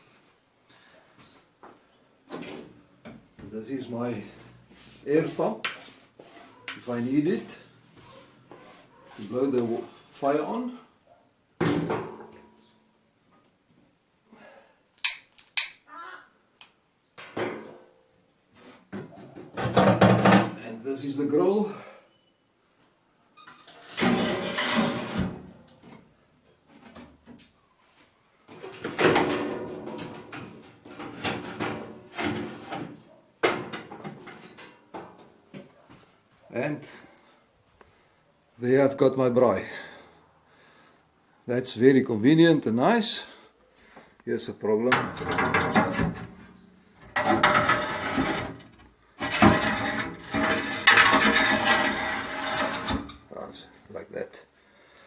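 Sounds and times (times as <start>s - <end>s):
metal grill scraping and rattling: 23.7s - 25.5s, 28.7s - 34.8s, 44.9s - 53.3s.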